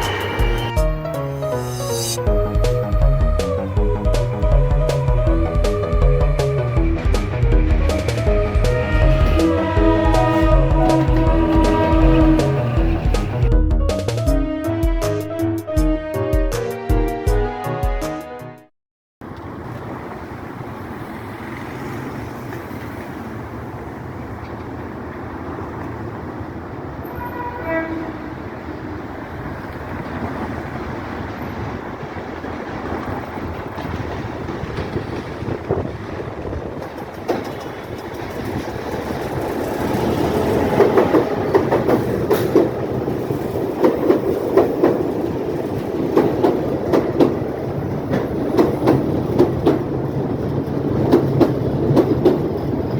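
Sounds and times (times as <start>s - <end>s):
short train horn: 0.0s - 1.0s, 8.0s - 13.5s, 27.0s - 28.4s
train running: 0.0s - 13.6s, 19.2s - 52.9s
wheels clattering over rail joints: 2.6s - 13.5s, 19.2s - 52.9s.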